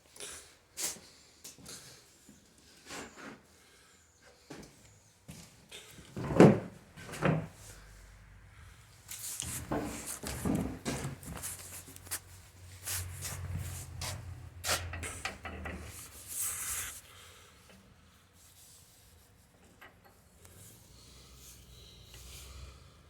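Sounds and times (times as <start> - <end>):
objects being handled: 9.1 - 17.0.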